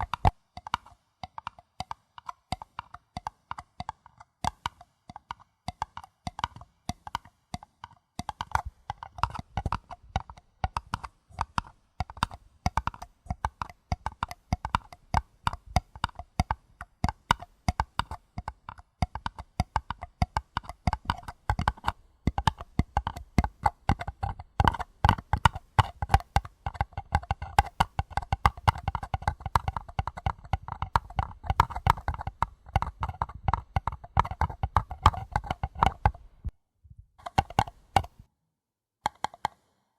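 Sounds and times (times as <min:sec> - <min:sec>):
paper cups tapped rapidly: 0:00.0 - 0:38.3, 0:39.0 - 0:39.6
soft low thumps: 0:29.4 - 0:37.2.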